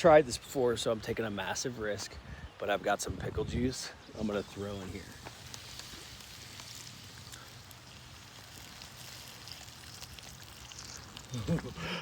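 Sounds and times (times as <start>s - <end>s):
faint fire crackles: 0.0s - 12.0s
food sizzling in a pan: 4.4s - 12.0s.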